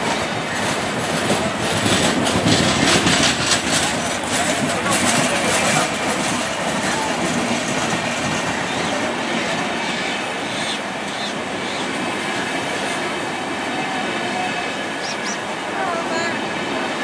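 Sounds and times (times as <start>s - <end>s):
train wheels running on rails: 0.0s - 17.0s.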